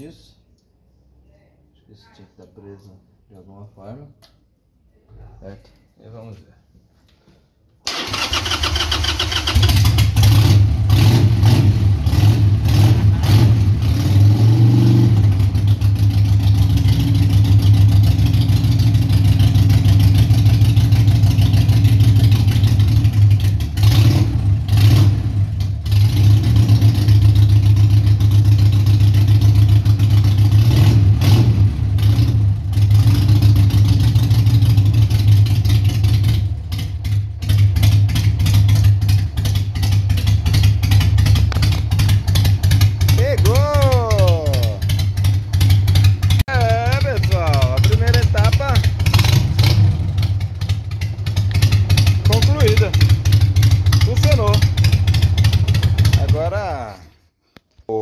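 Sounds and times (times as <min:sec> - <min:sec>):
motorcycle engine idling: 0:15.3 - 0:23.9, 0:25.4 - 0:30.6, 0:31.9 - 0:56.6.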